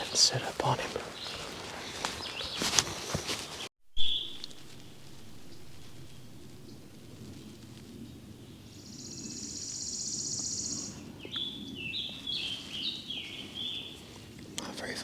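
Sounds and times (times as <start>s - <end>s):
songbirds singing: 0.0s - 3.2s, 4.0s - 15.0s
high buzzy bird trill: 4.0s - 10.9s
short falling bird notes: 4.0s - 11.5s.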